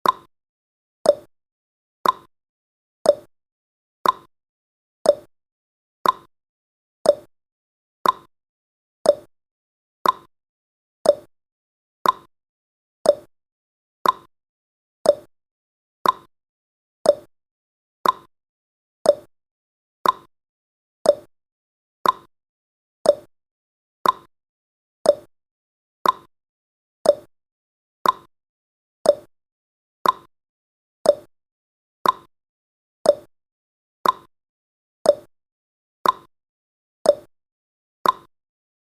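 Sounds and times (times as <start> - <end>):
timer ticking: 0.0 - 0.3, 1.1 - 1.3, 2.0 - 2.3, 3.1 - 3.3, 4.0 - 4.3, 5.1 - 5.3, 6.0 - 6.3, 7.0 - 7.3, 8.0 - 8.3, 9.0 - 9.3, 10.0 - 10.3, 11.0 - 11.3, 12.0 - 12.3, 13.0 - 13.3, 14.0 - 14.3, 15.0 - 15.3, 16.0 - 16.3, 17.0 - 17.3, 18.0 - 18.3, 19.0 - 19.3, 20.0 - 20.3, 21.0 - 21.3, 22.0 - 22.3, 23.0 - 23.3, 24.0 - 24.3, 25.0 - 25.3, 26.0 - 26.3, 27.0 - 27.3, 28.0 - 28.3, 29.0 - 29.3, 30.0 - 30.3, 31.0 - 31.3, 32.0 - 32.3, 33.0 - 33.3, 34.0 - 34.3, 35.1 - 35.3, 36.0 - 36.3, 37.1 - 37.3, 38.0 - 38.3.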